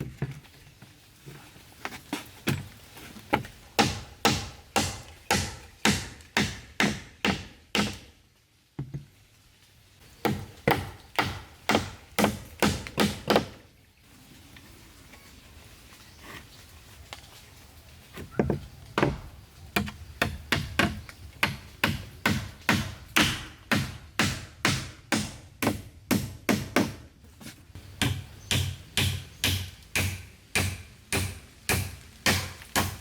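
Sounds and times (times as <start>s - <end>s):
tool striking wood: 19.8s - 27.0s.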